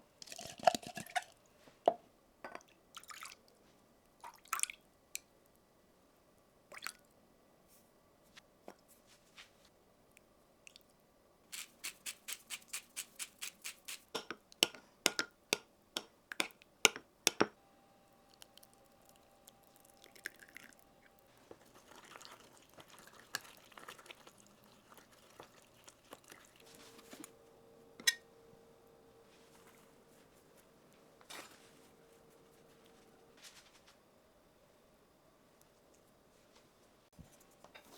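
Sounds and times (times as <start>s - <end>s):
scraping and rustling: 29.2s - 34.0s.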